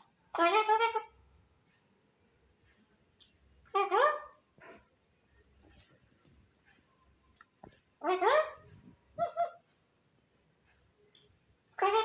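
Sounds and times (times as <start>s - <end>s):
parrot calling: 0.4s - 1.1s, 3.7s - 4.4s, 8.0s - 9.6s, 11.8s - 12.0s.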